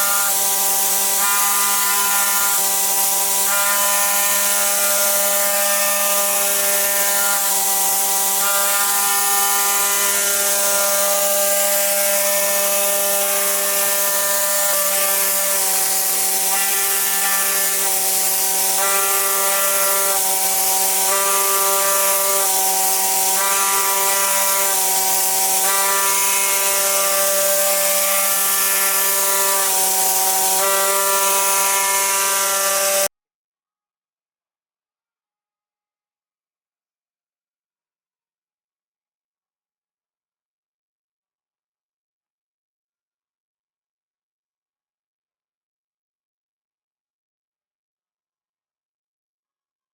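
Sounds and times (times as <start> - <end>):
motor tones changing pitch: 0.0 - 33.1.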